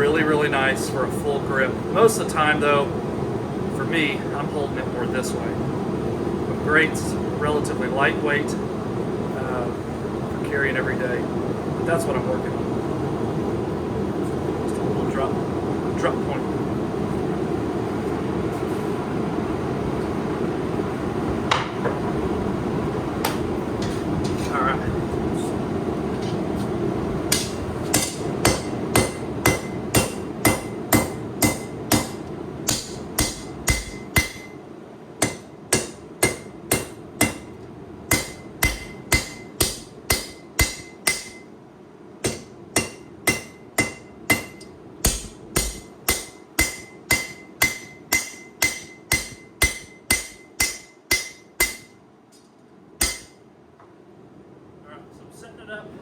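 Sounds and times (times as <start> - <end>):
hammer ringing on steel: 27.3 - 34.6, 38.1 - 41.5, 42.2 - 52.0, 53.0 - 53.4.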